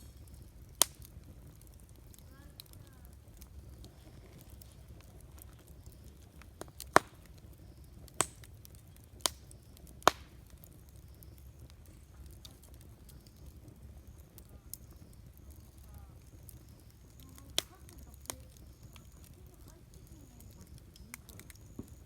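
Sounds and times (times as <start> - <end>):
burning wood popping: 0.0 - 22.0
campfire burning and crackling: 0.0 - 22.0.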